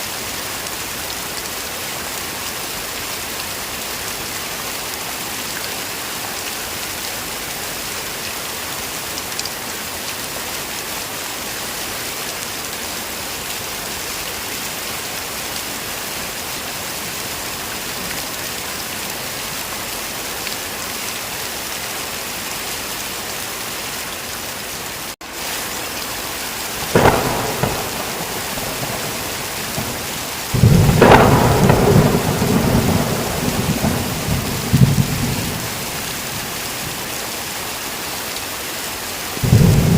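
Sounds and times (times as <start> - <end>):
heavy rain: 0.0 - 39.9
thunder: 26.8 - 36.0, 39.4 - 39.9.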